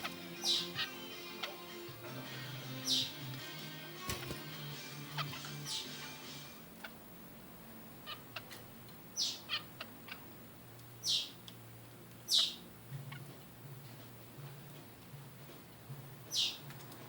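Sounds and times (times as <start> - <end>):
finches calling: 0.0 - 7.0, 7.9 - 10.4, 11.0 - 11.4, 12.2 - 13.3, 16.3 - 16.7.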